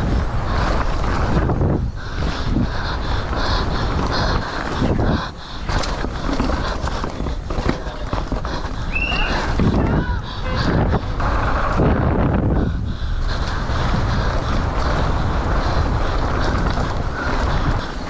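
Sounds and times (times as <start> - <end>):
wind rushing over microphone: 0.0 - 18.0
mountain bike rattling and knocking: 3.3 - 12.2.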